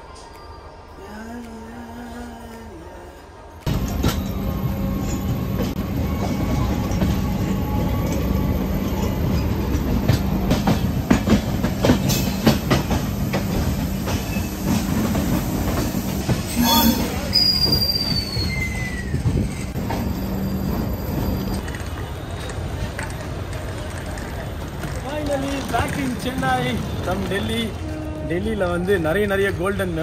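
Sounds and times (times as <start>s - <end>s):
train wheels clacking: 8.9s - 20.1s
metal squeal: 16.5s - 21.6s.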